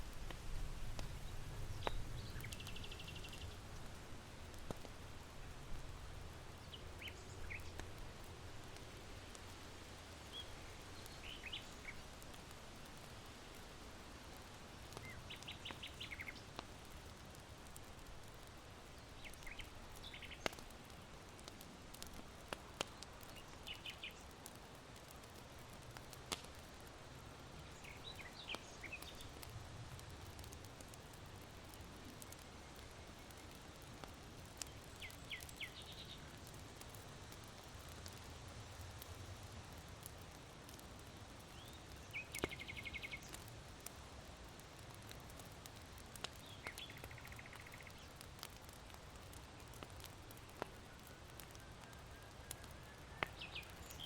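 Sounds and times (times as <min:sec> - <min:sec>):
charcoal fire popping: 0:00.0 - 0:54.0
small birds chirping: 0:01.0 - 0:05.6, 0:06.5 - 0:08.0, 0:10.2 - 0:12.2, 0:14.4 - 0:17.3, 0:18.4 - 0:25.3, 0:27.5 - 0:29.5, 0:30.2 - 0:38.2, 0:39.0 - 0:44.0, 0:44.8 - 0:54.0.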